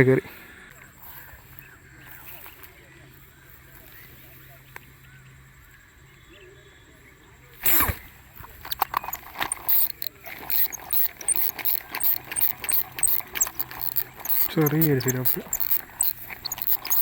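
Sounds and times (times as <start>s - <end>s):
fishing reel clicking: 7.7s - 17.0s.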